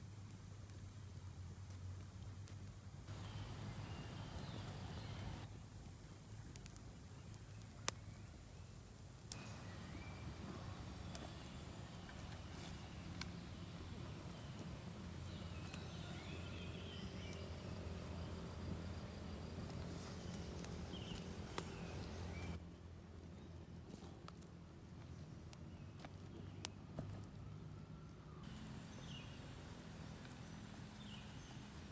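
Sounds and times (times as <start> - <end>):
insects droning: 3.1 - 5.5, 9.3 - 22.6, 28.4 - 31.9.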